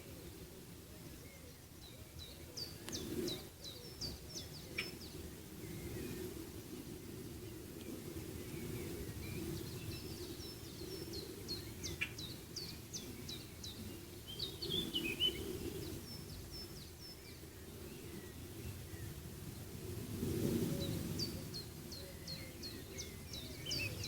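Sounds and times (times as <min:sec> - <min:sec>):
small birds chirping: 0:01.0 - 0:06.3, 0:07.8 - 0:19.2, 0:20.8 - 0:24.0.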